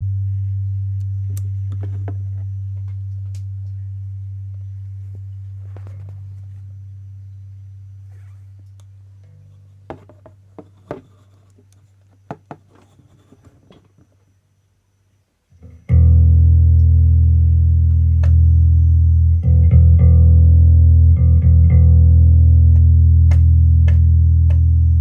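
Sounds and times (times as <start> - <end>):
electric bass notes: 0.0 - 9.9, 15.6 - 25.0
sharp crackles and pops: 1.0 - 6.8.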